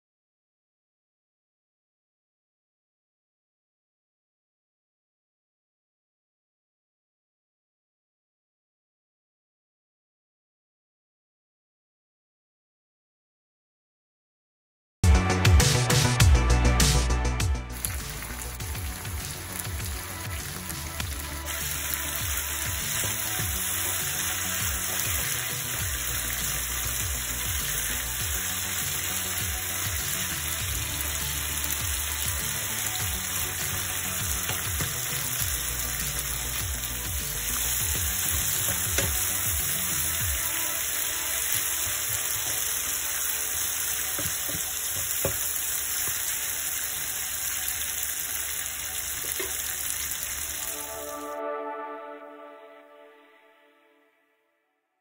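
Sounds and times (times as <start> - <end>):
meat sizzling in oil: 17.0 - 51.2.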